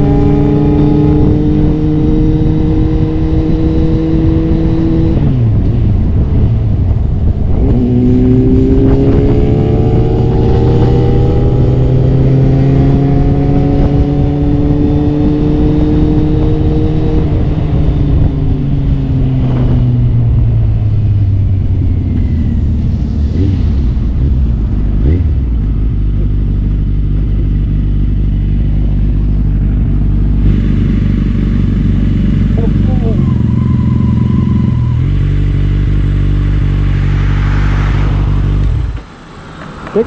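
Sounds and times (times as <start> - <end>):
heavy wind noise: 0.0 - 40.0
motorcycle engine at speed: 0.0 - 40.0.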